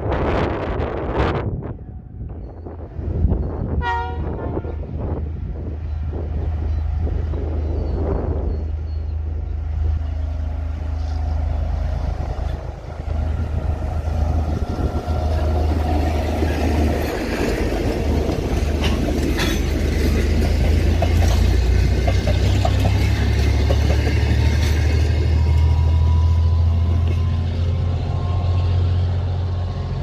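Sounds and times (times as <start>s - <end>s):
diesel engine rumble: 4.8s - 30.0s
wheel-on-rail noise: 7.6s - 30.0s.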